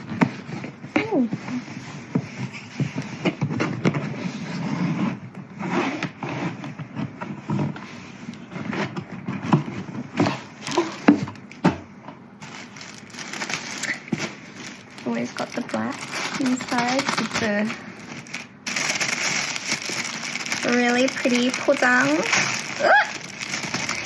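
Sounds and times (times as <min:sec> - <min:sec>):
cardboard box scraping: 0:00.3 - 0:11.2
packaging rustling: 0:12.3 - 0:24.0.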